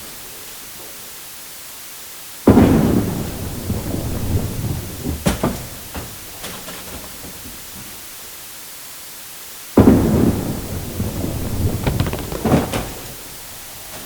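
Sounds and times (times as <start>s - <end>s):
bowling ball landing and rolling: 11.2s - 13.5s
bowling pins clattering: 11.3s - 13.4s.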